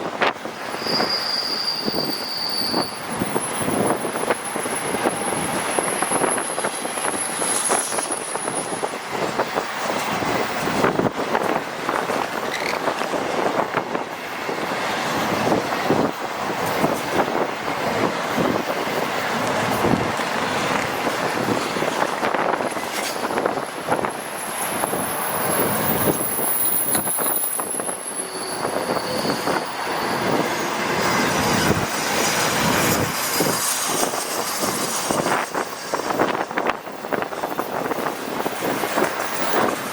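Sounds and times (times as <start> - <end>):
train wheels clattering on rails: 0.0 - 39.9
high-pitched wheel squeal: 0.7 - 9.0, 24.1 - 36.7.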